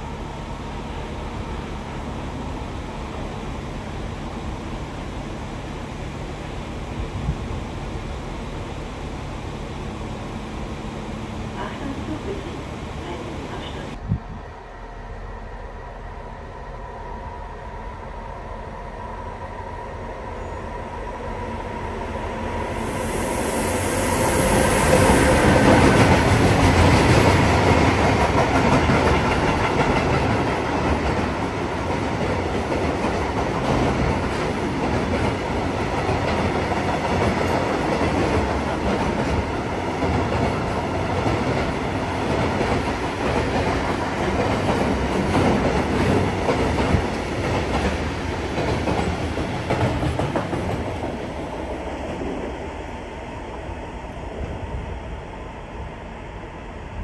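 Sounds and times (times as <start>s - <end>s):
train wheels rolling on rails: 19.6s - 57.0s.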